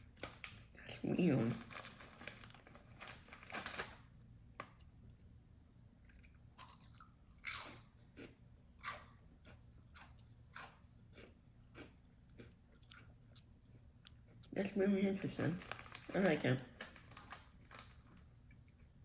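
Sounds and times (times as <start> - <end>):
person chewing crunchy snacks: 6.0 - 14.7.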